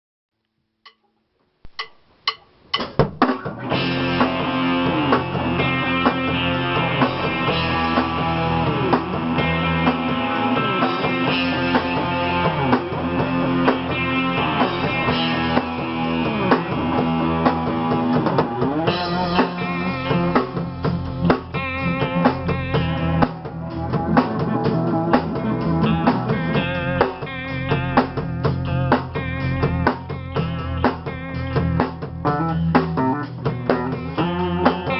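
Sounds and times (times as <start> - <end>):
sharp clicks: 1.7 - 3.0
rock music with guitars and drums: 2.9 - 34.9.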